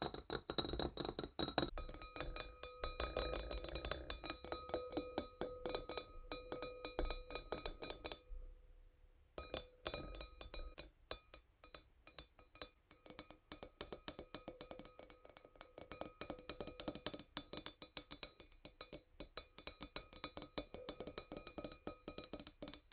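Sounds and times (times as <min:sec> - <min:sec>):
fingernails tapping a wine glass: 0:00.0 - 0:08.3, 0:09.4 - 0:10.8, 0:11.6 - 0:22.9
glass ringing: 0:00.6 - 0:08.3, 0:09.4 - 0:10.8.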